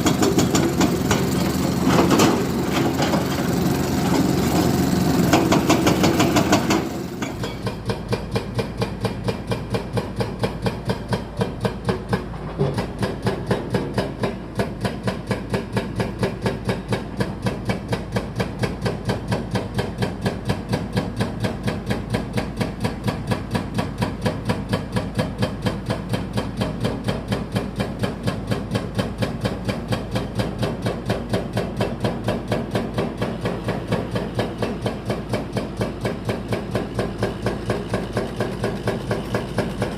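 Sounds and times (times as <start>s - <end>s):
engine chugging: 0.0s - 39.9s.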